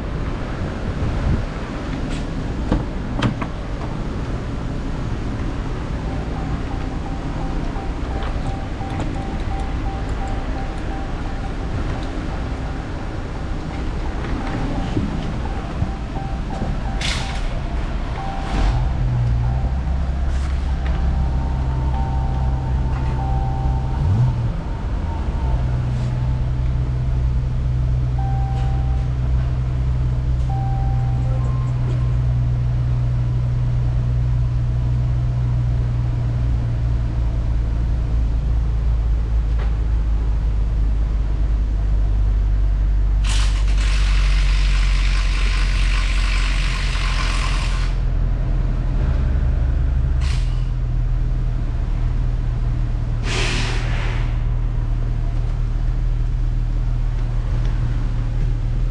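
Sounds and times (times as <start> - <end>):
car engine running: 2.5 - 33.2
hiss: 53.2 - 54.5.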